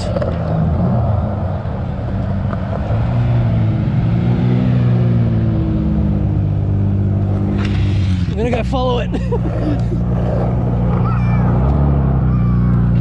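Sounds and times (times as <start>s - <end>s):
car engine running at low revs: 0.0s - 13.0s.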